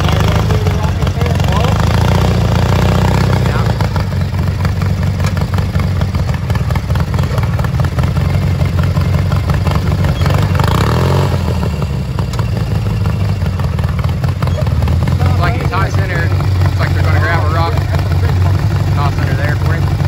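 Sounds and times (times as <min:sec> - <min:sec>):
lawn mower engine under load: 0:00.0 - 0:20.0.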